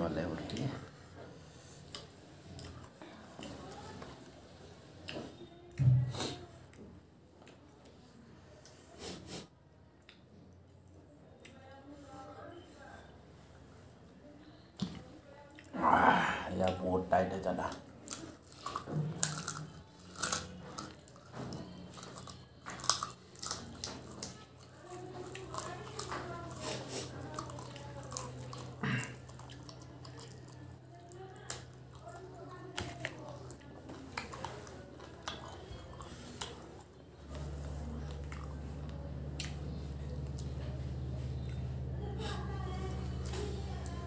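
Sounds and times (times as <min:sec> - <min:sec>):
chewing and biting chicken: 0:18.0 - 0:44.0
steady low hum: 0:33.3 - 0:44.0.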